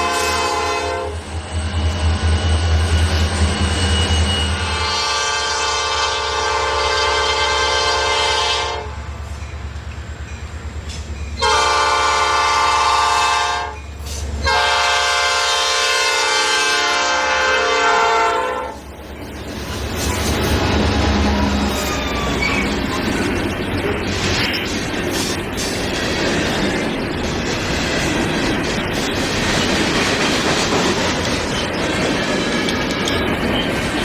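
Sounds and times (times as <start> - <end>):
train air horn blasts: 0.0 - 1.3, 4.6 - 9.0, 11.4 - 13.8, 14.4 - 18.9
diesel locomotive rumble: 0.0 - 34.0.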